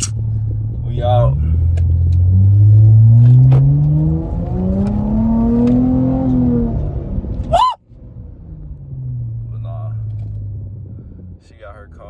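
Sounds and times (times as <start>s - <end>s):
car engine accelerating hard: 1.4s - 7.5s.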